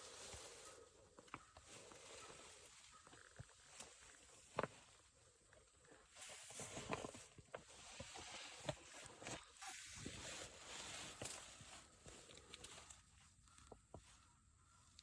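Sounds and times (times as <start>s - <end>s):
clothing rustling: 6.1s - 13.2s.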